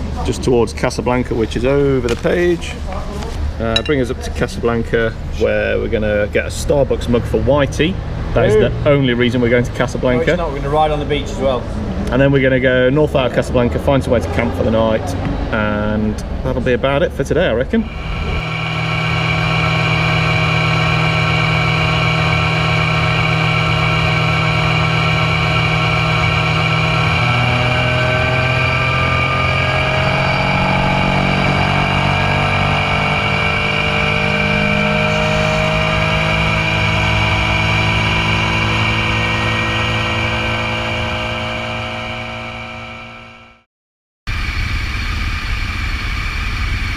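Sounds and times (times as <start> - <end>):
motorcycle engine running: 17.7 - 43.6.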